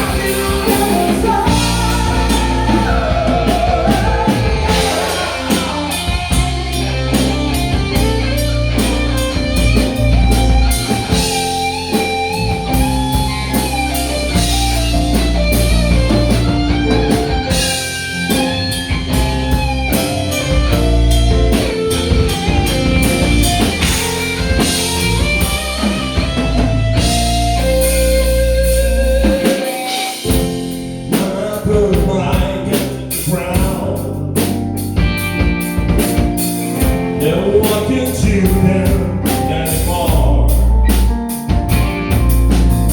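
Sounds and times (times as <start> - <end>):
rock band playing: 0.0 - 42.9.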